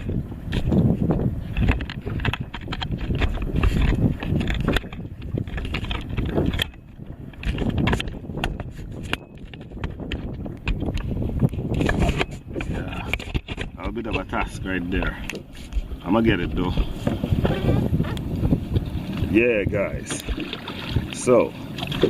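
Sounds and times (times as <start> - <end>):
camera handling knocks and rubbing: 0.0 - 15.9, 16.8 - 18.8.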